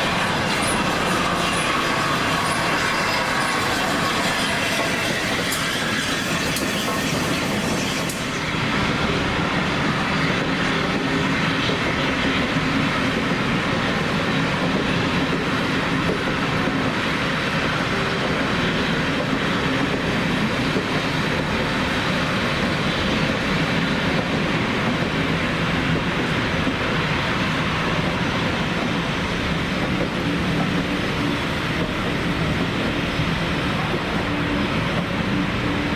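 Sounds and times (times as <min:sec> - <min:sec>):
train rumbling past: 0:00.0 - 0:35.9.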